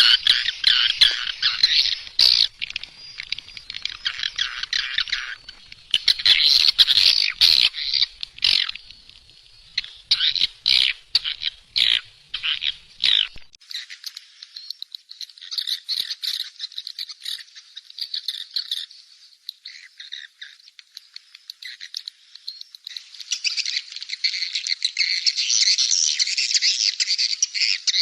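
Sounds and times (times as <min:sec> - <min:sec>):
swiftlet chattering calls: 0:00.0 - 0:18.8.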